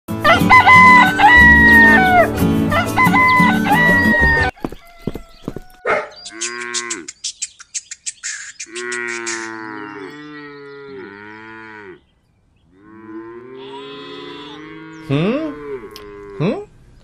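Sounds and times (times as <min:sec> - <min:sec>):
cow mooing: 0:08.7 - 0:12.0, 0:12.7 - 0:16.7.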